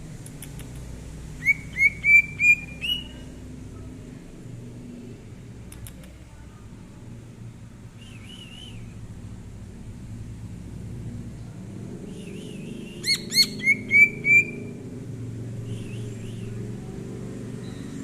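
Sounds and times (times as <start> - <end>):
low steady rumble: 0.0 - 18.0
bird warbling and whistling: 1.4 - 3.2, 12.2 - 14.7.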